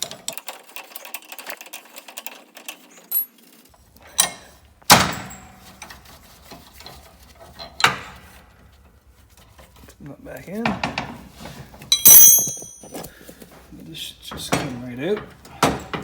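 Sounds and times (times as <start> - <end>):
sharp metal clanks: 11.9 - 13.1.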